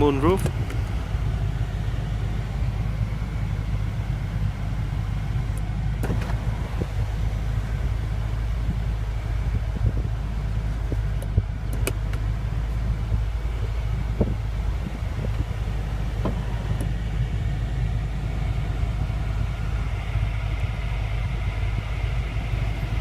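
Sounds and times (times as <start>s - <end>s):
car engine idling drone: 0.0s - 23.0s.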